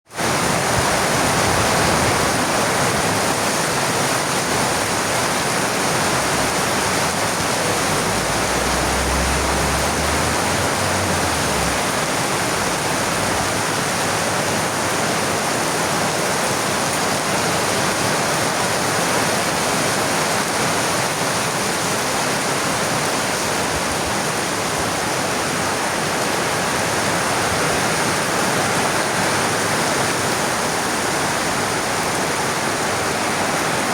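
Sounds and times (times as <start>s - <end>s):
heavy rain: 0.1s - 33.9s
low rumble: 6.1s - 13.5s.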